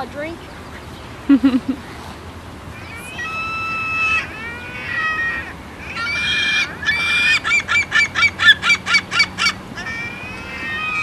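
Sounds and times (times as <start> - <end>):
seagulls calling: 2.7 - 11.0.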